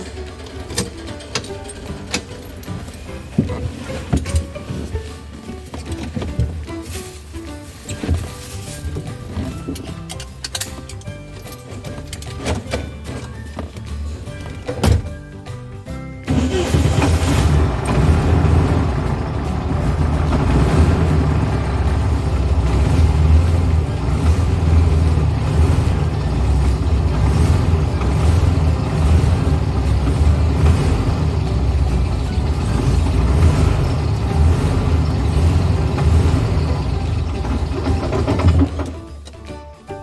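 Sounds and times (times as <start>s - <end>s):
car engine running: 0.0s - 6.7s, 16.3s - 39.2s.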